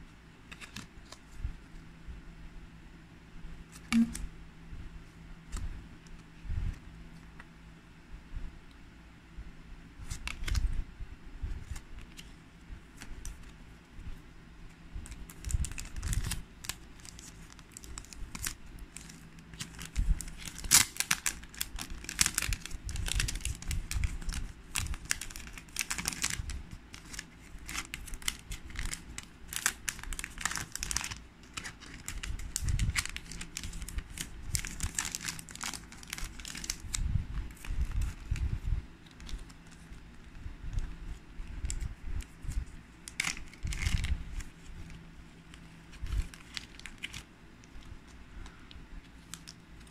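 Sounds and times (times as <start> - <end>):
packaging crinkling and rustling: 10.0 - 10.7, 15.0 - 49.9.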